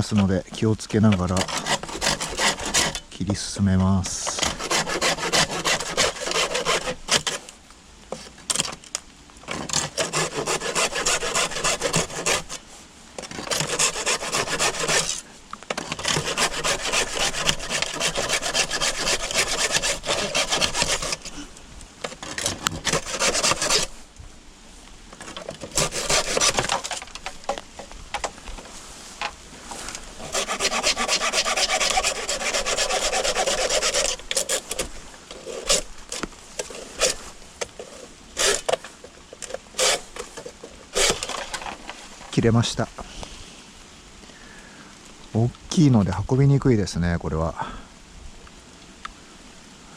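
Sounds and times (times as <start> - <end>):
saw cutting bamboo: 1.0 - 3.1, 4.2 - 7.5, 9.5 - 21.4, 22.1 - 24.0, 25.2 - 27.3, 30.1 - 41.7.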